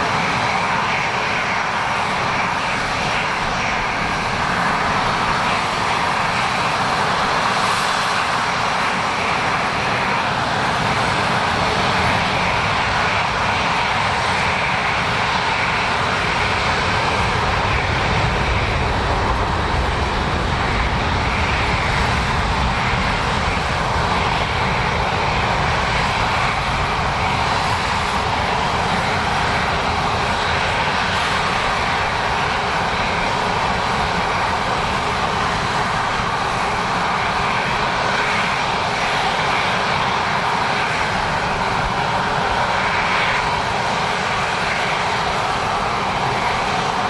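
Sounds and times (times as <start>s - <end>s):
airliner engines running: 0.0s - 47.0s.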